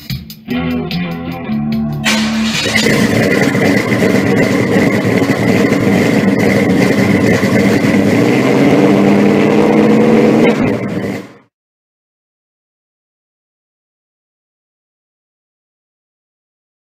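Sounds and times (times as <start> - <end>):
loud car engine with rough exhaust: 1.7 - 11.5.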